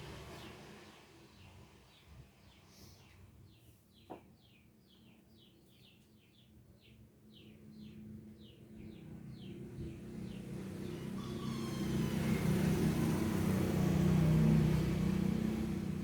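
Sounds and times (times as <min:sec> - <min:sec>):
small bird chirping: 0:01.4 - 0:13.3.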